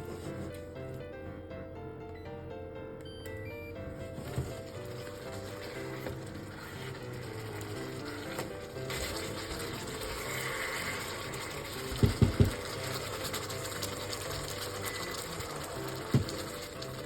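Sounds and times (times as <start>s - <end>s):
soft background music: 0.0s - 17.0s
liquid bubbling in cooking pan: 4.1s - 17.0s.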